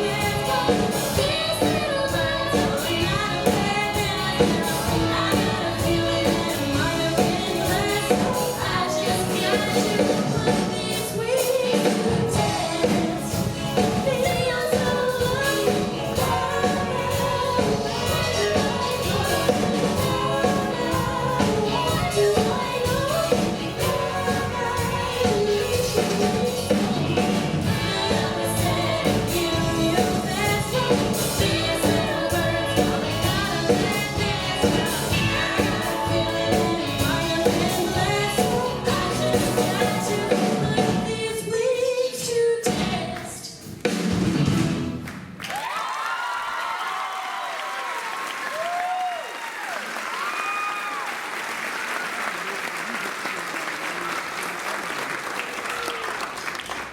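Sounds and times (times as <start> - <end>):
steady drum beat: 0.0 - 11.1, 11.7 - 41.2
voices singing together: 0.0 - 41.6
live band playing: 0.0 - 45.4.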